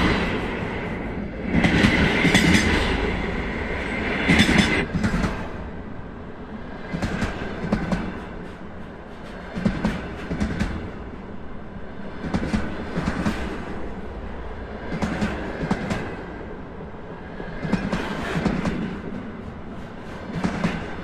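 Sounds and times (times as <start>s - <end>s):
train rolling rumble: 0.0s - 21.0s
train wheels clacking over rail joints: 1.5s - 3.0s, 6.9s - 11.0s, 17.6s - 21.0s.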